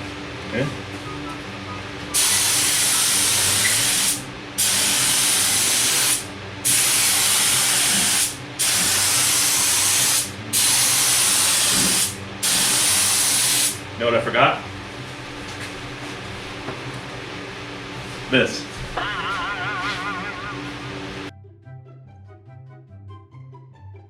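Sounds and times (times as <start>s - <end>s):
air spray gun hissing: 2.2s - 13.8s.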